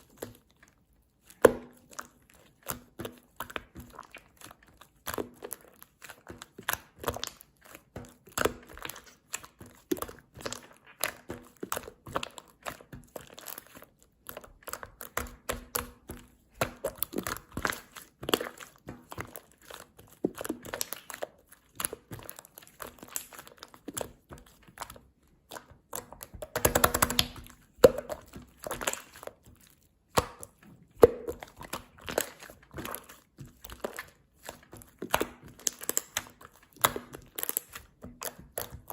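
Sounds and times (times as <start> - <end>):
hands squishing slime: 0.0 - 38.9
sticky pops and crackles: 25.8 - 29.2, 34.6 - 38.9.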